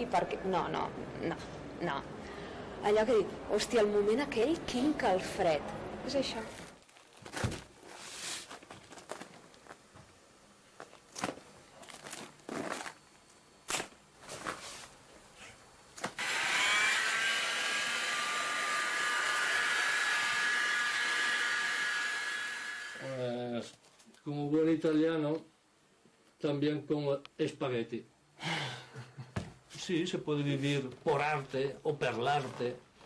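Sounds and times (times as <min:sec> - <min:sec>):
small electric motor whirring: 0:16.2 - 0:23.2.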